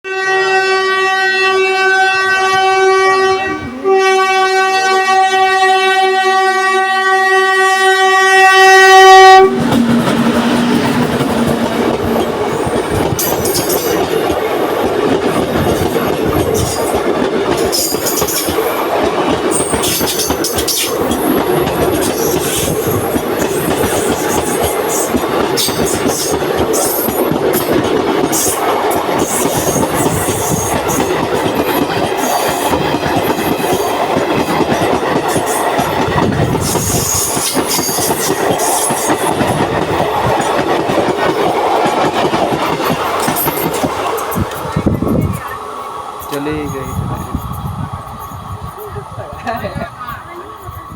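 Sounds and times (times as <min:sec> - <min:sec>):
train horn blasts: 0:00.1 - 0:12.6
train wheels on rails: 0:07.5 - 0:50.9
wheels clicking over rail joints: 0:09.6 - 0:50.8.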